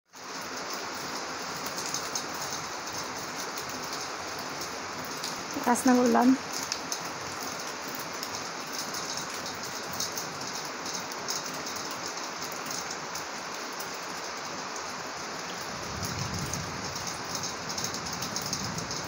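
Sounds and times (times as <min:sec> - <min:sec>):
heavy rain falling: 0:00.1 - 0:19.0.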